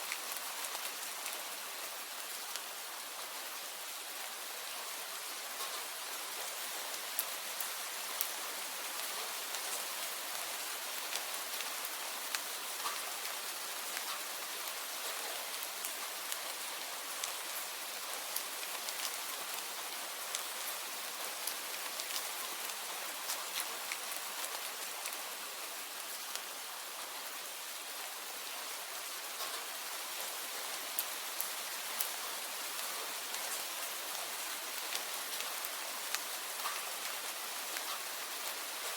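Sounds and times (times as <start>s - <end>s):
rain hiss: 0.0s - 38.9s
raindrop ticks: 11.1s - 13.1s, 18.3s - 19.6s, 20.3s - 20.6s, 21.3s - 25.2s, 29.4s - 29.7s, 32.8s - 38.9s.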